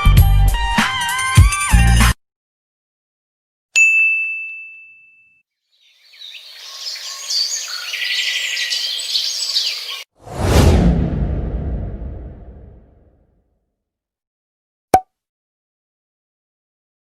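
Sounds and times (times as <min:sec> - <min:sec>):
high bell ding: 0:03.8 - 0:05.4
birds chirping: 0:05.7 - 0:10.1.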